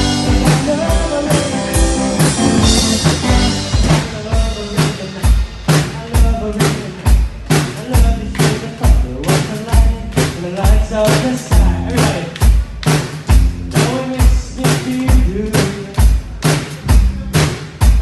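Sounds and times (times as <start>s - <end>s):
person singing: 0.0s - 7.1s, 7.7s - 12.4s, 13.7s - 16.1s
live band playing: 0.0s - 18.0s
loud kick drum: 2.4s - 18.0s.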